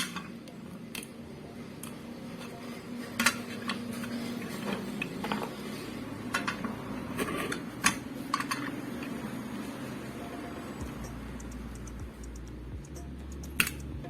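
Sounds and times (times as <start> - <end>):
metal parts and wrench clinking: 6.3 - 9.2.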